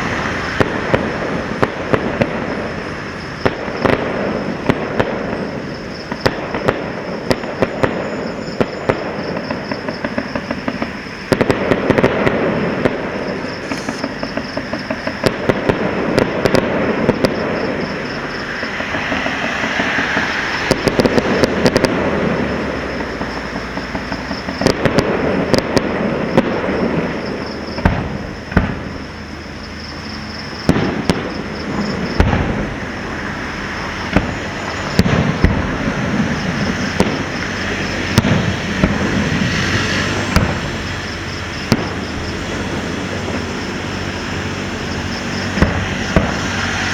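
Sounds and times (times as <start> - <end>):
fireworks bangs: 0.0 - 46.9
fireworks booms: 0.0 - 46.9
fireworks crackling and popping: 0.0 - 46.9.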